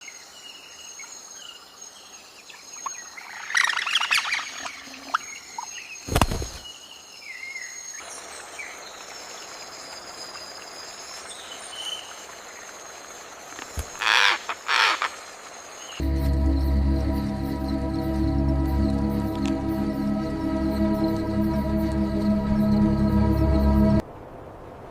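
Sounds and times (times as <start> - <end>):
outdoor ambience: 0.0 - 24.9
wild birds calling and singing: 13.5 - 16.0
calm music: 16.0 - 24.0.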